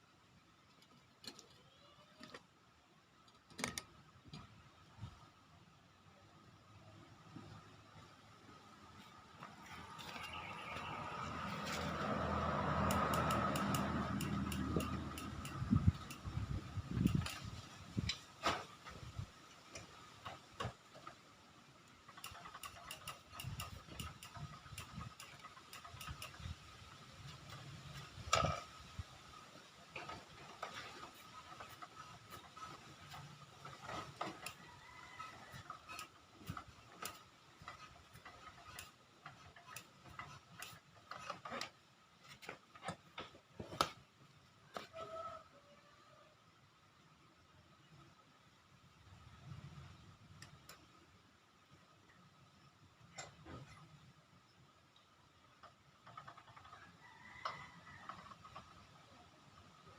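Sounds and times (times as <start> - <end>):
hand tools clicking on metal: 11.4 - 18.3, 21.8 - 28.7, 35.2 - 43.9.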